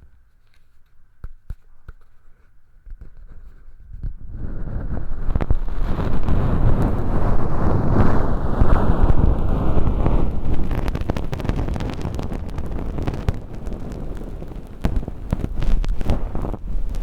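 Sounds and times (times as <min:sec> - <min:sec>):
light crackling clicks: 0:07.9 - 0:17.0.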